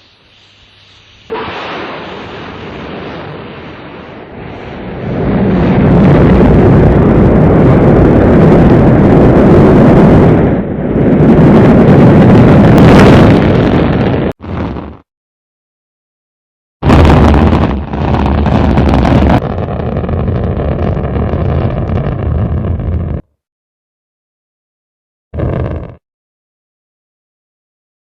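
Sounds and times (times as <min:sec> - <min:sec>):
rocket engines rumbling: 0:01.3 - 0:15.0, 0:16.8 - 0:23.2, 0:25.4 - 0:26.0.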